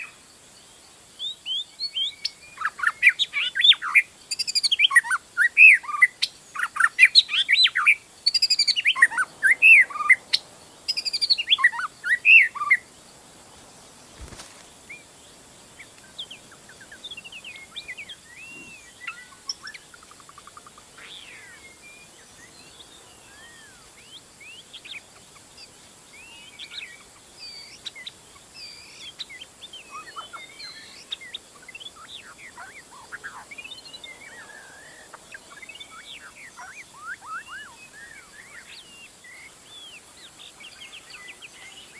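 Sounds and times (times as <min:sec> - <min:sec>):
faint bird chirps and whistles: 0:00.0 - 0:12.9, 0:14.1 - 0:41.9
bird singing whistled phrases: 0:01.2 - 0:10.2, 0:16.2 - 0:19.8, 0:21.0 - 0:24.7, 0:26.2 - 0:40.0.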